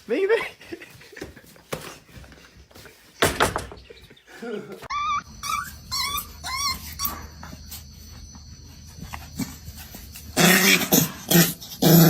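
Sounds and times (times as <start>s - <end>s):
dog whining: 4.8s - 8.2s.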